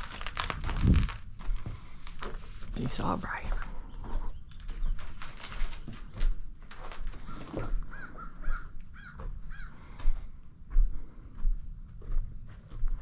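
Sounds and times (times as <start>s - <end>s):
rustling: 0.0s - 8.1s
bird calling: 7.2s - 9.8s.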